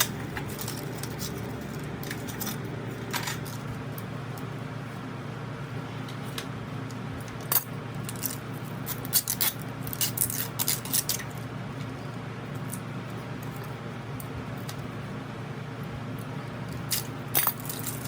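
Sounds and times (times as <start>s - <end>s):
steady low hum: 0.0s - 18.0s
small hard objects clinking: 16.8s - 18.0s.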